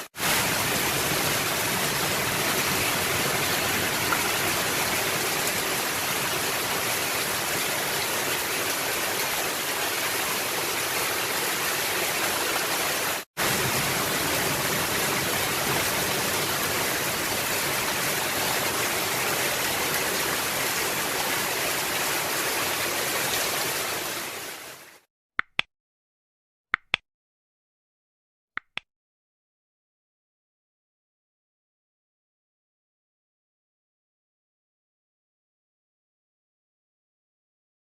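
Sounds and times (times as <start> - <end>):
rain on a roof: 0.0 - 25.0.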